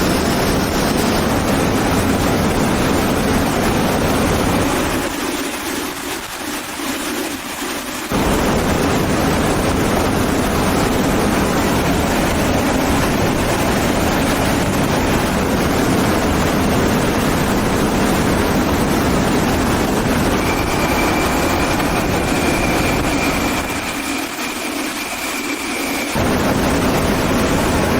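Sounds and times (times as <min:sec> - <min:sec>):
jet engine roaring: 0:00.0 - 0:27.9
thin high whine: 0:08.1 - 0:27.9.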